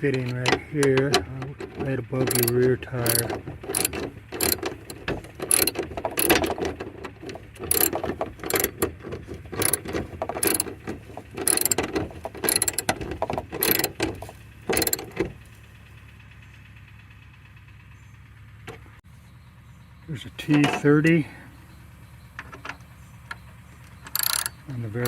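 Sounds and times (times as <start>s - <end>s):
socket ratchet clicking: 0.0s - 6.8s, 7.6s - 9.0s, 9.6s - 15.2s, 24.1s - 24.6s.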